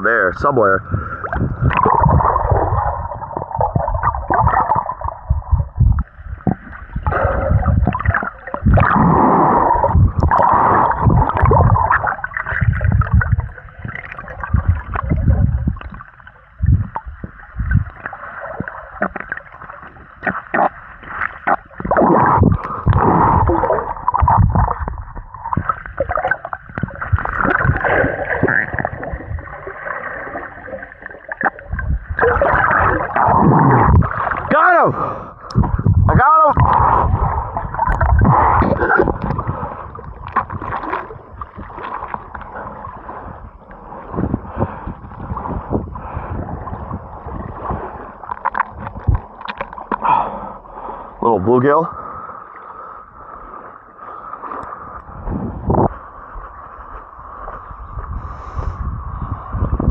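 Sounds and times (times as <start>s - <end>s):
muffled water sloshing and gurgling: 0.0s - 59.9s.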